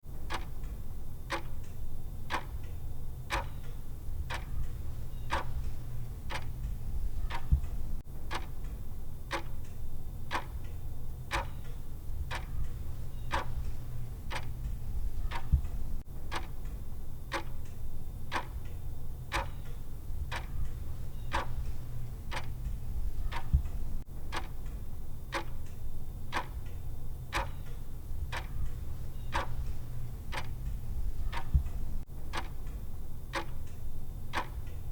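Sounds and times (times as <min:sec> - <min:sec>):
clock ticking: 0:00.2 - 0:34.9
low hum: 0:27.8 - 0:32.0.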